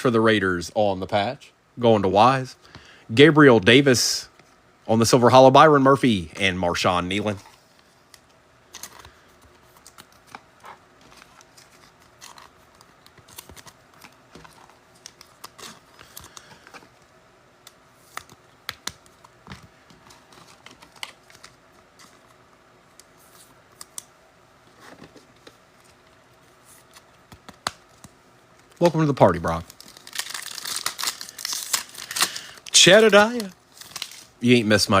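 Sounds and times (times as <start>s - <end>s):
trading cards clicking and rustling: 7.2s - 17.0s, 17.6s - 24.1s, 24.7s - 34.3s.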